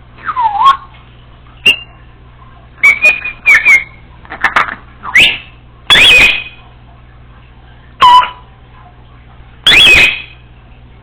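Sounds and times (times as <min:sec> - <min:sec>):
parrot whistled calls: 0:00.2 - 0:00.9, 0:01.6 - 0:02.0, 0:02.8 - 0:04.1, 0:05.0 - 0:06.6, 0:08.0 - 0:08.4, 0:09.6 - 0:10.4.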